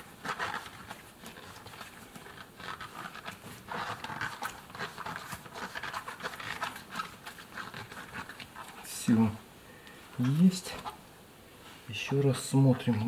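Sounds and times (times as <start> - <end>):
hands rubbing rubber seal: 0.0 - 9.1, 10.2 - 11.0.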